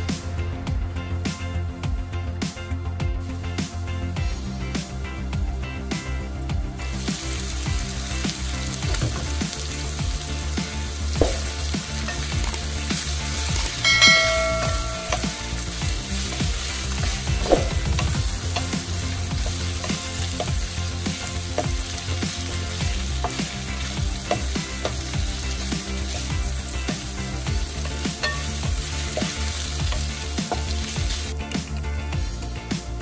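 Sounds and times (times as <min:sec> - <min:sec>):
meat sizzling in a wok: 0:00.0 - 0:33.0
wooden spatula knocking pan: 0:11.2 - 0:12.4, 0:13.7 - 0:15.4.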